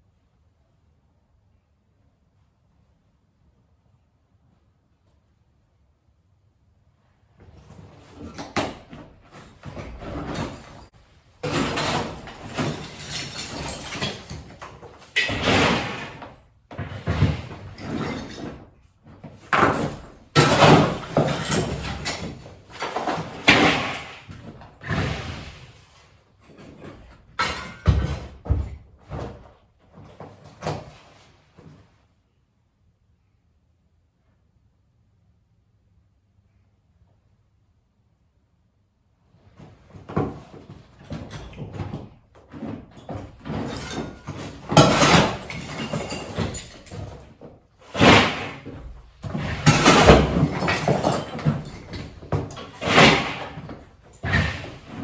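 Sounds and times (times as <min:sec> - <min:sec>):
demolition bangs and crashes: 0:08.6 - 0:18.6, 0:19.3 - 0:25.8, 0:26.6 - 0:29.4, 0:40.1 - 0:55.0
rubble rattling: 0:09.3 - 0:18.6, 0:40.2 - 0:55.0.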